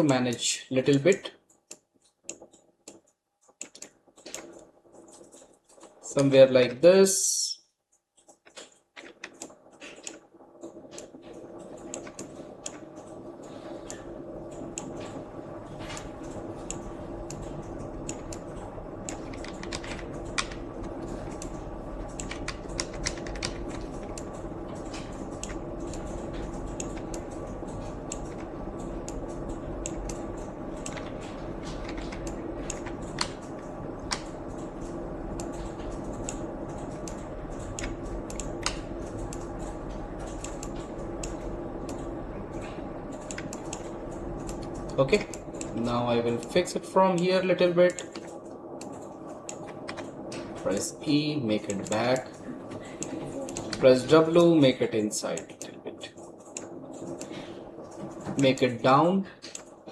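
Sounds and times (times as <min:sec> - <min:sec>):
steady hum: 0:00.0 - 0:59.9
keyboard and mouse clicks: 0:01.0 - 0:06.3, 0:07.9 - 0:15.2, 0:15.8 - 0:47.3, 0:47.9 - 0:50.6.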